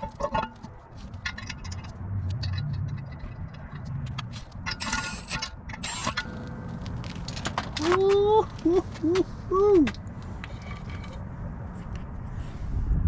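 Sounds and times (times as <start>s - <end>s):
low rumble: 0.0s - 4.8s
handling clicks and scrapes: 0.0s - 12.6s.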